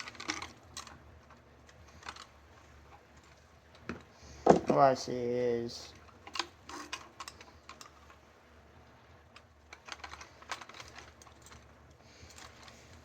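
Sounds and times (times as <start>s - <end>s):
small metal parts clicking: 0.0s - 3.8s, 5.9s - 8.2s, 9.4s - 13.0s.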